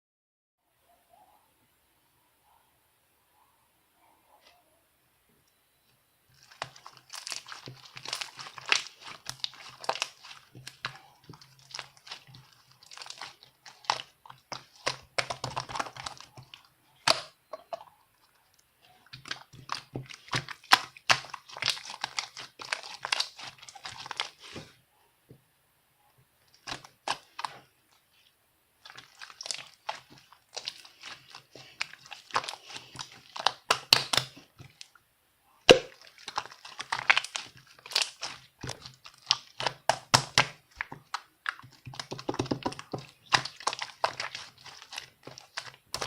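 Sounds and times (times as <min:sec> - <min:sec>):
crinkly material being crumpled: 0:06.3 - 0:16.7, 0:26.7 - 0:34.9, 0:36.0 - 0:40.0, 0:40.7 - 0:46.0.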